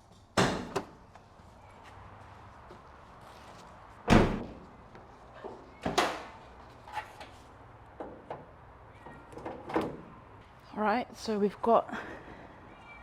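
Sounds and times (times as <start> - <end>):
car door shutting: 4.1 - 4.5
car body knocks and clunks: 4.1 - 4.6.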